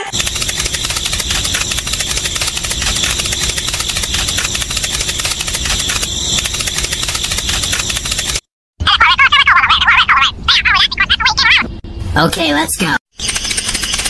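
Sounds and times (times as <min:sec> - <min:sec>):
small engine rattling: 0:00.1 - 0:08.4.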